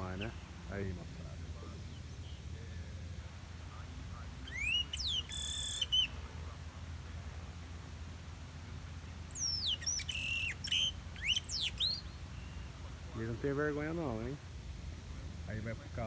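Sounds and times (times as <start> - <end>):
blackbird singing whistles: 4.4 - 6.2, 9.4 - 12.7.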